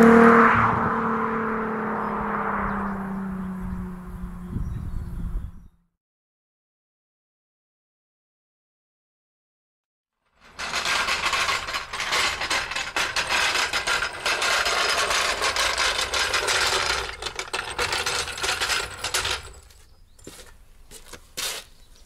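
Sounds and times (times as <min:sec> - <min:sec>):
loud mechanical rattling: 0:10.4 - 0:19.8.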